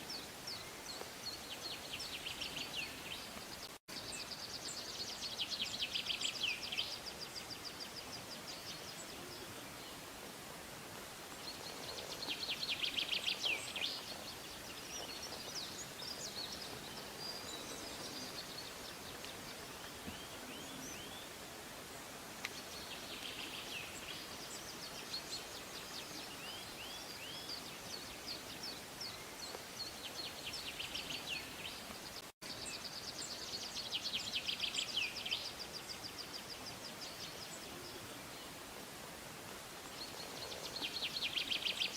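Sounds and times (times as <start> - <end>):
steady outdoor hiss: 0.0 - 41.9
songbirds trilling: 11.3 - 38.6, 39.8 - 41.9.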